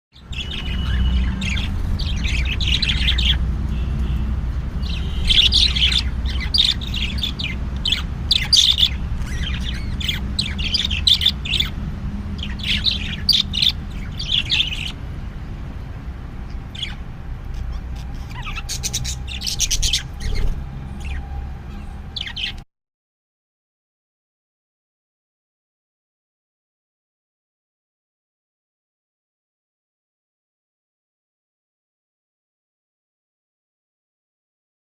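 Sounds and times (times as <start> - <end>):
birds chirping and squawking: 0.2 - 22.6.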